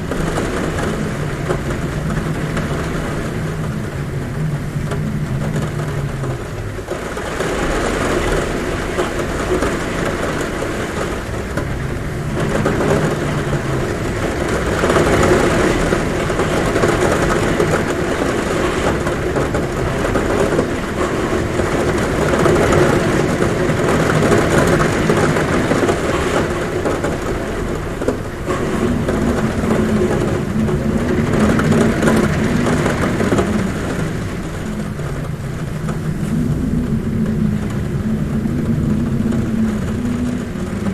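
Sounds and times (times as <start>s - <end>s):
heavy rain on a roof: 0.0s - 40.9s
wind humming at a window: 0.0s - 40.9s
low wavering hum: 28.3s - 40.9s.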